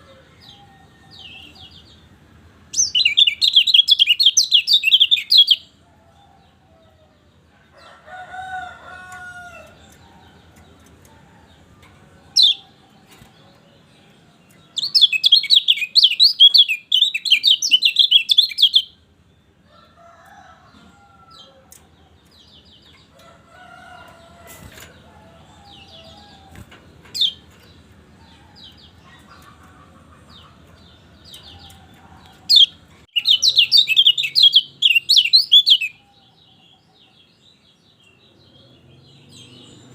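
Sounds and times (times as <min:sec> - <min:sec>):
bird singing rapid high chirps: 0:02.8 - 0:05.7, 0:14.8 - 0:19.0, 0:32.5 - 0:36.0.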